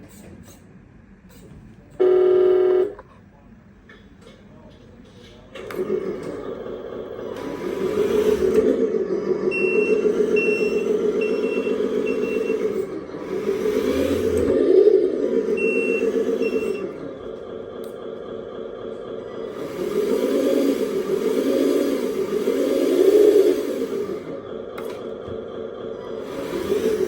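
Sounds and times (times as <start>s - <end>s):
reverse warning beeps: 2.0s - 3.0s, 9.5s - 12.9s, 15.5s - 17.0s.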